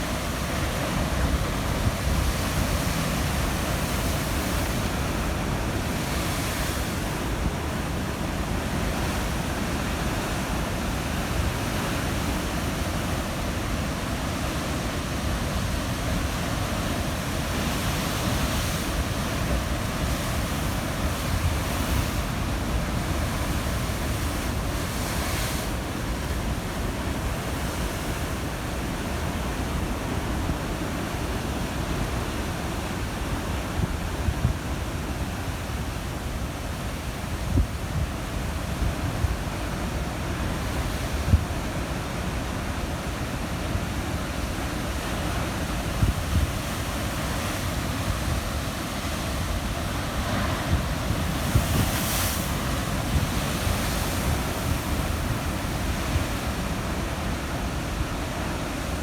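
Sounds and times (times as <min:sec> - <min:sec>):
surf crashing on rocky shore: 0:00.0 - 0:59.0
wind buffeting microphone: 0:45.9 - 0:56.9.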